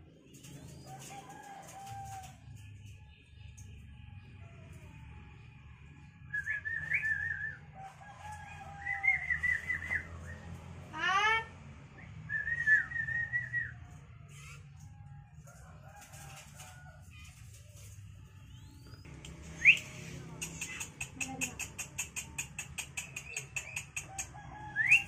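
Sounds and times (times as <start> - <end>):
birds calling: 18.5 - 25.0.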